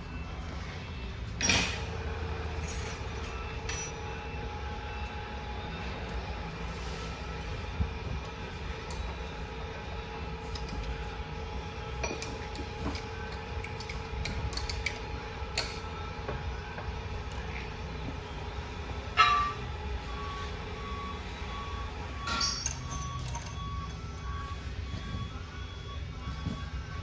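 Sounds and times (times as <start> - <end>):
low shop hum: 0.0 - 27.0
metal parts clinking: 2.6 - 4.0, 22.3 - 23.6
sharp metal clank: 19.2 - 19.6.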